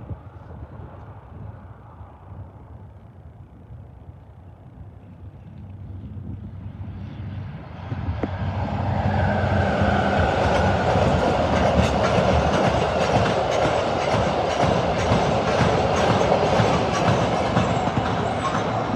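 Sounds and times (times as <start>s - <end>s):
diesel locomotive engine: 0.0s - 18.9s
train wheels rolling: 8.2s - 18.9s
wheels clicking over rail joints: 10.5s - 18.9s.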